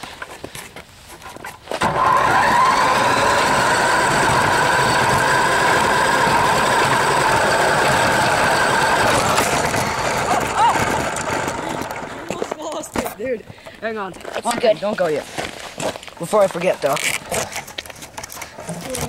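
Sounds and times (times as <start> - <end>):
rc car motor whining: 1.8 - 12.6.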